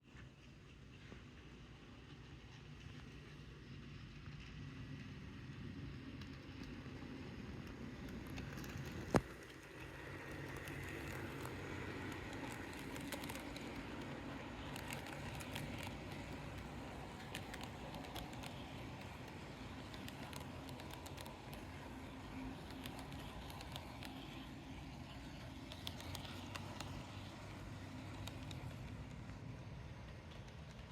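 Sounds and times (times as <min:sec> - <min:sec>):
model train running on track: 0:00.0 - 0:30.9
light clicks: 0:07.6 - 0:30.9.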